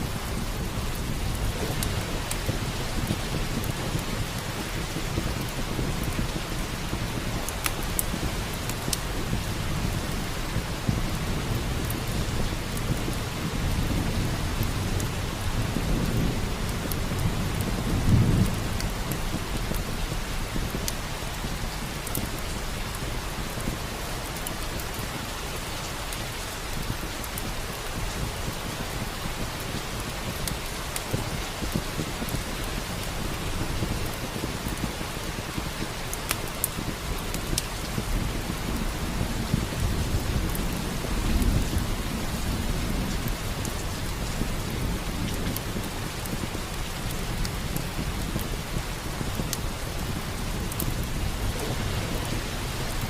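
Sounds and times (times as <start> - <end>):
thunder rumbling: 0.0 - 23.9, 36.8 - 53.0
fireplace fire crackling: 0.0 - 53.0
steady rain: 0.0 - 53.0.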